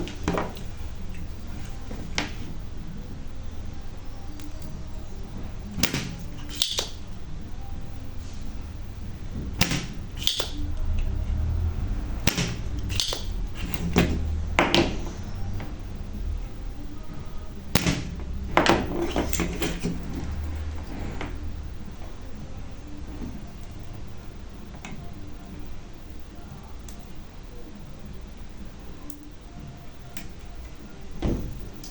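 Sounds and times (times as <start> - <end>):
steady low hum: 0.0 - 31.9
hand tools clicking and scraping: 5.7 - 7.1, 9.6 - 11.2, 12.2 - 14.4.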